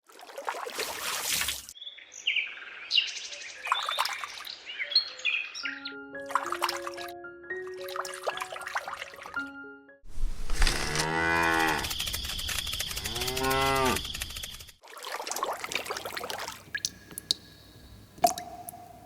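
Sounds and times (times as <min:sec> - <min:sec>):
cow mooing: 0:10.7 - 0:11.9, 0:13.0 - 0:14.0.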